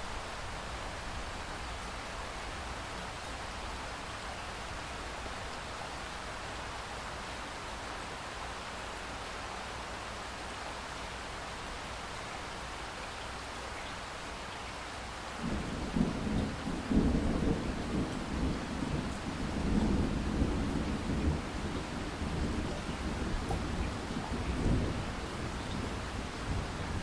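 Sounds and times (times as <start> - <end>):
steady rain hiss: 0.0 - 27.0
rolling thunder rumble: 15.4 - 27.0.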